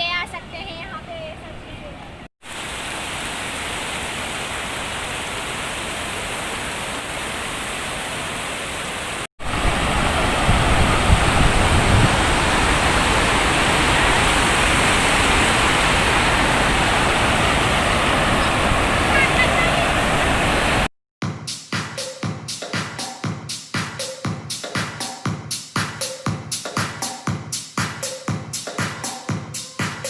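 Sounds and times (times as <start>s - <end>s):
waterfall rushing: 2.4s - 20.9s.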